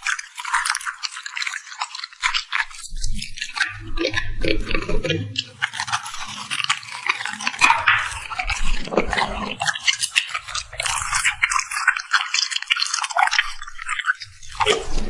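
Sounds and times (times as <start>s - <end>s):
puppy chewing and smacking: 0.0s - 15.0s.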